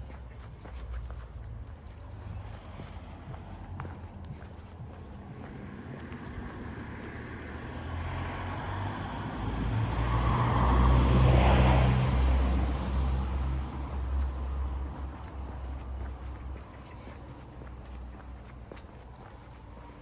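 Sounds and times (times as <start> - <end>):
car driving past: 5.6 - 15.1.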